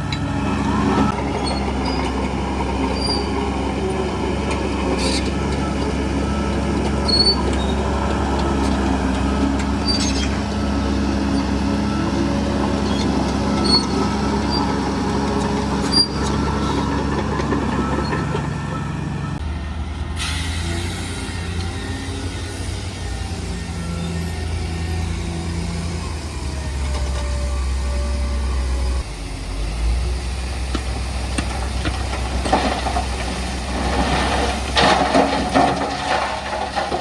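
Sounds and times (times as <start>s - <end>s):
diesel engine running: 0.0s - 37.0s
short metallic squeaks: 7.0s - 7.8s, 9.8s - 10.6s, 12.8s - 14.8s, 15.8s - 16.9s.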